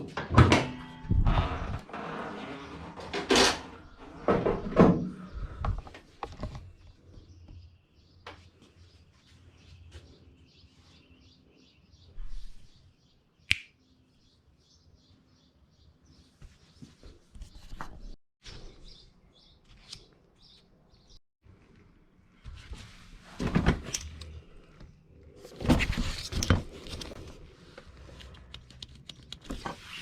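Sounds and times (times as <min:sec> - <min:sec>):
small birds chirping: 0:05.1 - 0:21.2
sharp click: 0:13.5 - 0:13.8.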